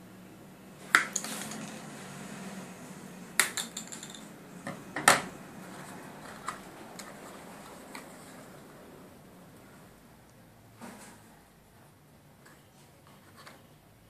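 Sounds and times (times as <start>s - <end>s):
small hard objects clinking: 1.0s - 1.8s, 3.4s - 4.3s.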